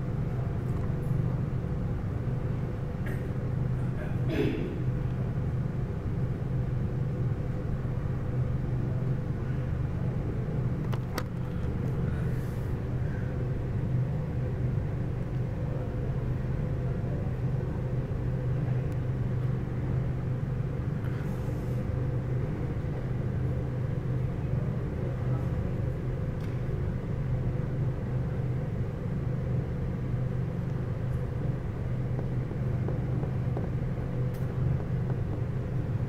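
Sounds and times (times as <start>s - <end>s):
freight train wheels rumbling: 30.0s - 36.0s.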